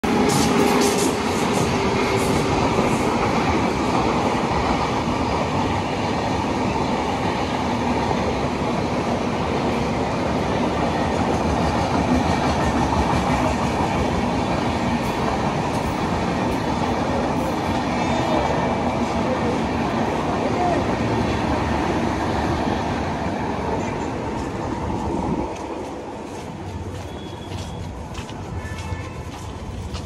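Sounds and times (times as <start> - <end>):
steel wheels running on rail: 0.0 - 30.0.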